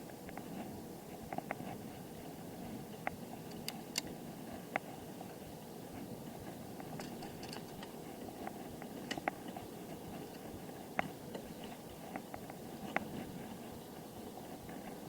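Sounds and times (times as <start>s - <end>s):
bicycle rolling on road: 0.0s - 15.0s.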